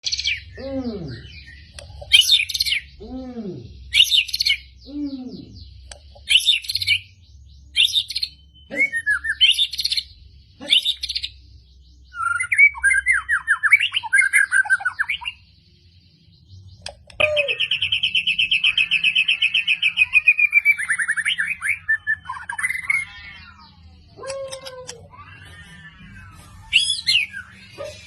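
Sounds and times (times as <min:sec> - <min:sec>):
bird fast trill: 0:00.0 - 0:04.9, 0:16.5 - 0:28.0
bird whistled phrases: 0:00.0 - 0:05.6, 0:07.8 - 0:11.3, 0:12.1 - 0:15.4, 0:16.8 - 0:28.0.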